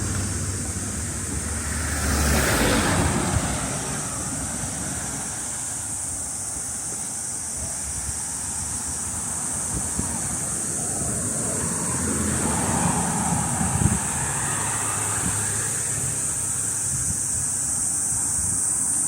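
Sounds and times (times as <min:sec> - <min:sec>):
vehicle whooshing past: 0:00.0 - 0:05.7, 0:10.0 - 0:17.2
cicadas droning: 0:00.0 - 0:19.0.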